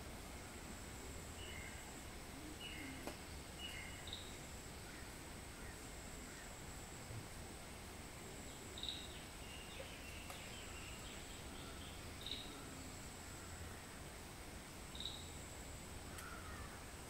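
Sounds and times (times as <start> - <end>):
steady hiss: 0.0 - 17.0
faint click: 16.1 - 16.4.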